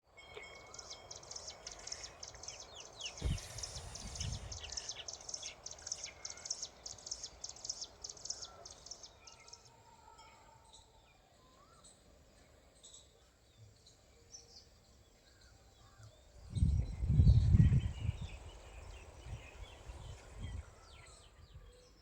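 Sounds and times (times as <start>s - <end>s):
faint outdoor background: 0.0s - 22.0s
small birds chirping: 0.4s - 9.7s
low thump: 3.2s - 4.5s.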